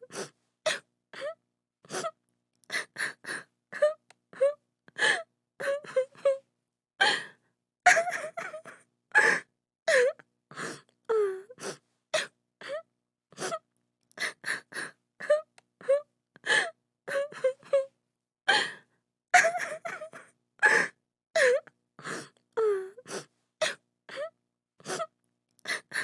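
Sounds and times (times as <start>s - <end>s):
woman sobbing: 7.9s - 10.2s, 17.1s - 17.9s, 19.4s - 21.6s.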